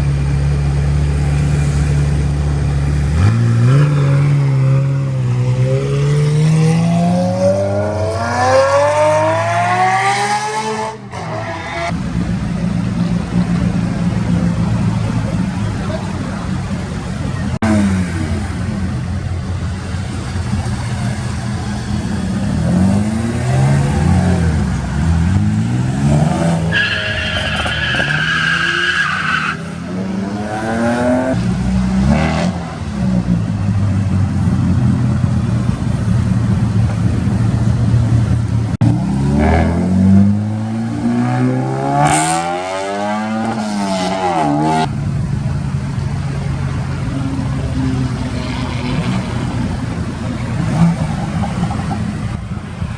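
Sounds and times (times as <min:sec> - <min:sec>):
car engines revving: 0:00.0 - 0:52.9
high tyre squeal: 0:11.1 - 0:31.4, 0:46.0 - 0:52.9.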